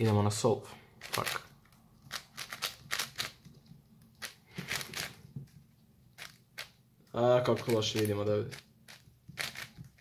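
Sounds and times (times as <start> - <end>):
plastic puzzle cube clicking: 2.1 - 5.2, 6.2 - 6.8, 7.5 - 10.0.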